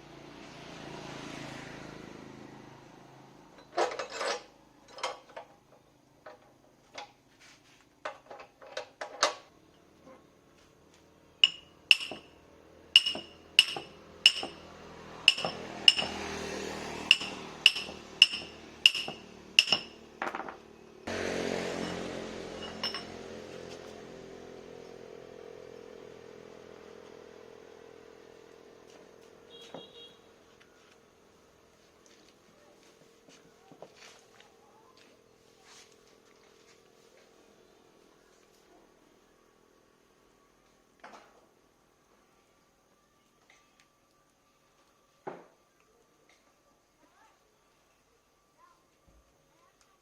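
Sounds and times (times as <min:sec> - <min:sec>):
hammer tapping on metal: 0:11.4 - 0:12.3, 0:13.0 - 0:14.7, 0:15.3 - 0:16.2, 0:17.1 - 0:20.0.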